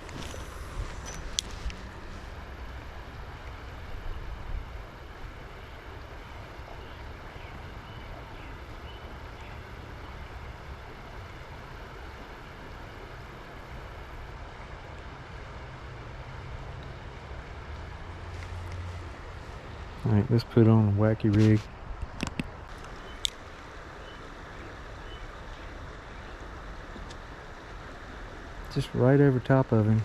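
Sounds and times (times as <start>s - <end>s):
creek water running: 0.0s - 30.0s.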